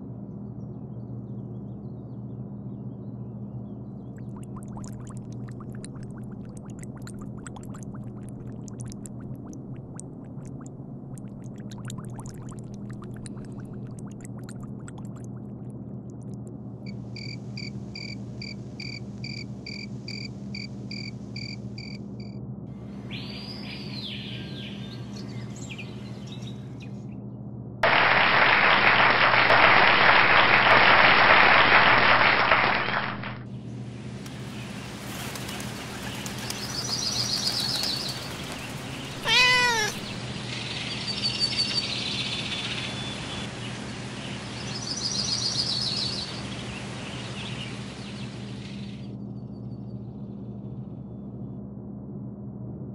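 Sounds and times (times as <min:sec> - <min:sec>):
low steady drone: 0:00.0 - 0:27.8, 0:40.1 - 0:52.9
birds chirping: 0:34.3 - 0:48.4
cat meow: 0:39.2 - 0:40.2.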